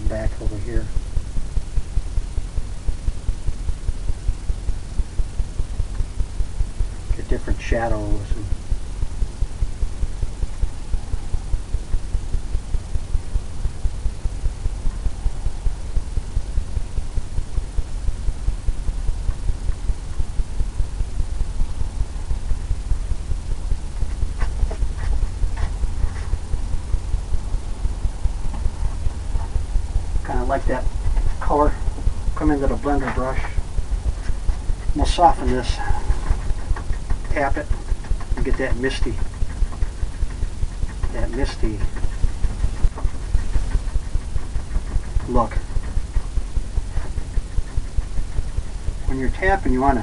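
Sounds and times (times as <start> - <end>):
speech: 0.0 - 0.9, 7.1 - 8.6, 30.2 - 31.8, 32.4 - 33.6, 34.9 - 36.1, 37.3 - 37.8, 38.4 - 39.2, 41.1 - 41.9, 45.2 - 45.6, 49.1 - 50.0
low throbbing hum: 0.0 - 50.0.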